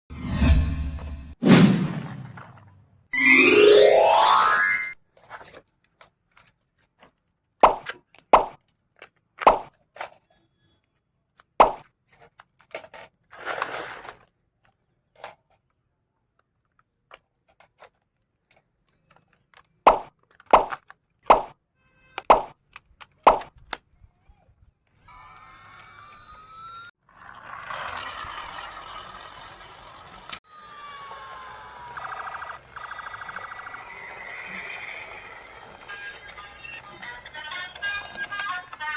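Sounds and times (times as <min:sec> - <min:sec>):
taps and knocks of toy parts: 0:17.1 - 0:21.5.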